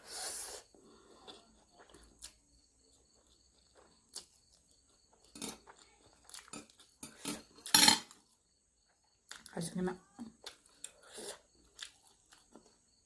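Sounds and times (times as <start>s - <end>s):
tableware clicking and clattering: 6.5s - 8.2s.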